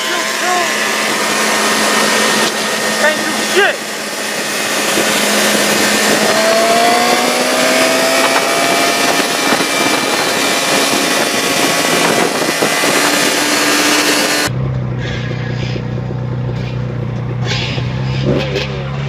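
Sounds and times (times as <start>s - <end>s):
steady rushing noise: 0.0s - 14.5s
vehicle engines running: 0.0s - 19.0s.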